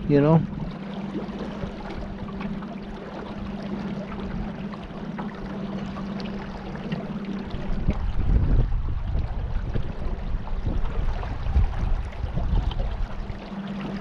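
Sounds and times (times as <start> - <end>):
boat motor humming: 0.0 - 14.0
water rushing and splashing: 0.0 - 14.0.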